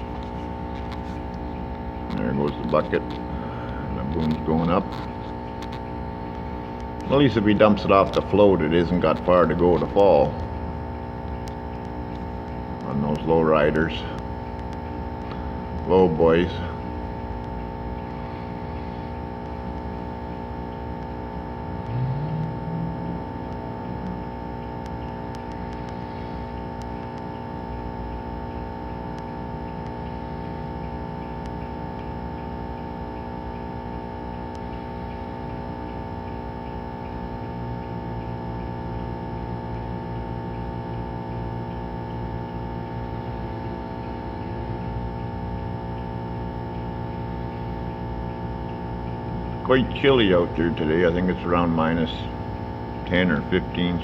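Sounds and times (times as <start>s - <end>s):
engine humming: 0.0s - 25.5s.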